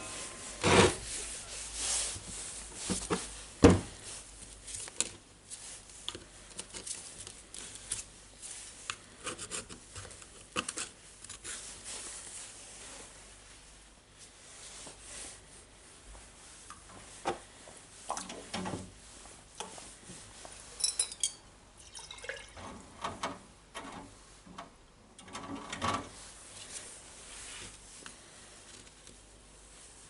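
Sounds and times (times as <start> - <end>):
ringing metallic clinks: 20.8 - 21.4
small parts clicking and scraping: 20.8 - 21.4.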